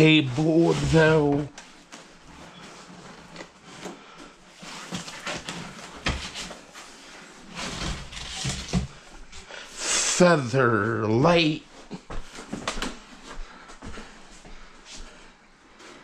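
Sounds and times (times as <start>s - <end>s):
packaging rustling and scraping: 0.3s - 9.0s.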